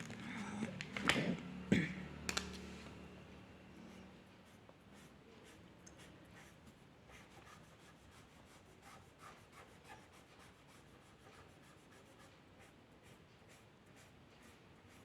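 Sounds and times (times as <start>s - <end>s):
drawing tool scratching paper: 4.5s - 15.0s.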